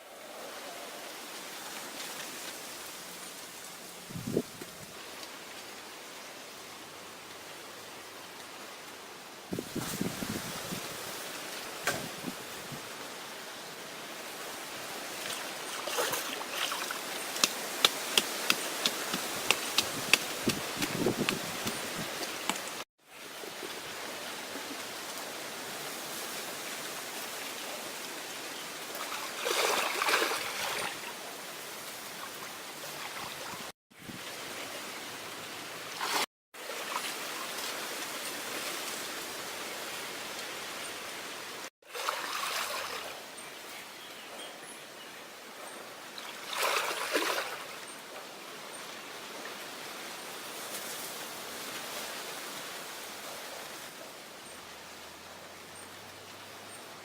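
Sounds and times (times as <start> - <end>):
water running over waterfall: 0.0 - 43.4.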